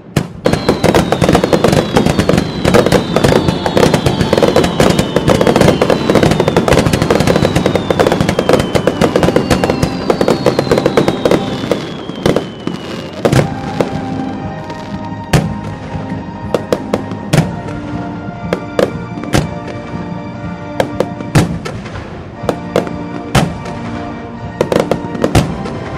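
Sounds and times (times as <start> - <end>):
fireworks bangs: 0.0 - 20.0, 20.7 - 25.9
fireworks whistling: 0.0 - 20.0
background music held notes: 0.0 - 25.9
fireworks crackling: 0.0 - 25.9.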